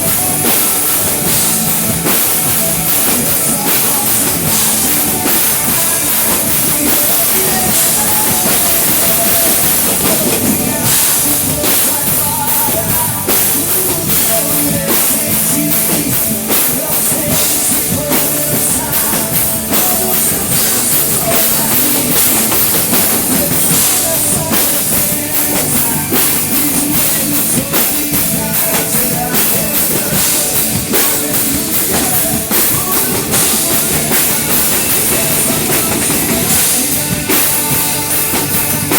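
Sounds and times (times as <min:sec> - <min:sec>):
fast dense drum strokes: 0:00.0 - 0:38.9
live band playing instrumental: 0:00.0 - 0:38.9.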